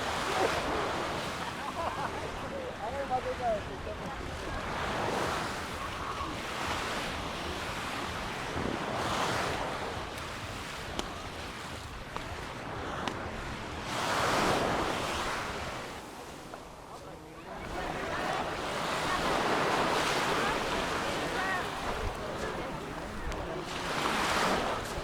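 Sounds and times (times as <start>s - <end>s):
waves breaking on beach: 0.0s - 25.0s.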